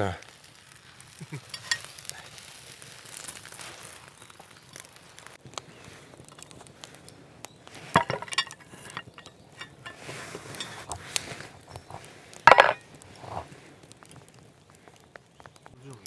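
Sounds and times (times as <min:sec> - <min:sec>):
dishes and cookware clinking: 0:01.5 - 0:01.9, 0:07.9 - 0:11.0, 0:12.5 - 0:13.4.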